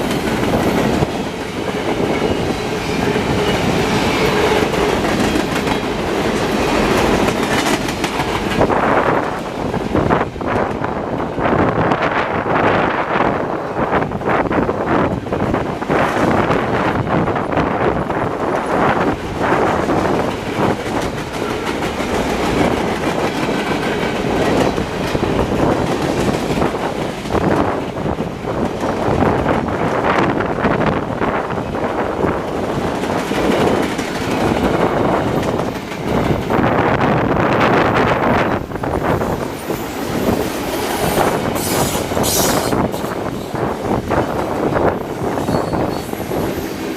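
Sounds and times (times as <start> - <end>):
wheels clacking over rail joints: 0.0 - 9.9, 18.0 - 30.4
wheels clicking on rails: 0.0 - 11.3
freight train rolling past: 0.0 - 46.9
steel wheels rumbling on rail: 0.0 - 46.9.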